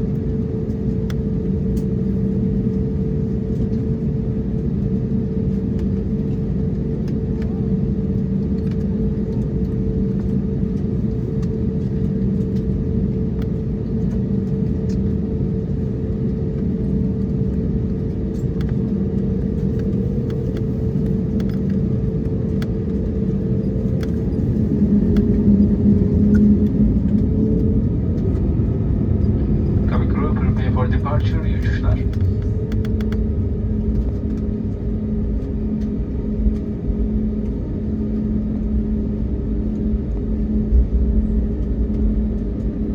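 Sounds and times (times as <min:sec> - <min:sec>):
airplane cabin engine rumble: 0:00.0 - 0:42.9
steady hum: 0:14.5 - 0:42.9.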